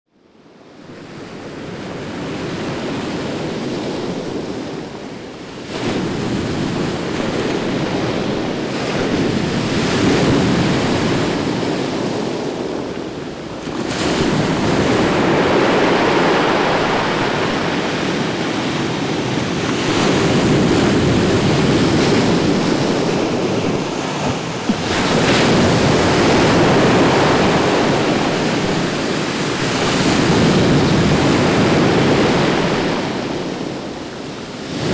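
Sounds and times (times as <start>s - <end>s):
surf breaking on beach: 5.6s - 34.9s.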